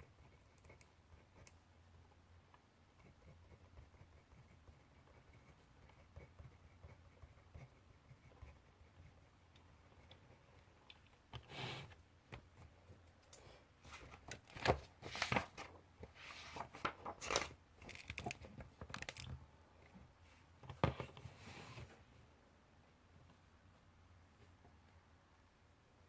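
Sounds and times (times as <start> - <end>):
paper rustling: 13.9 - 19.3.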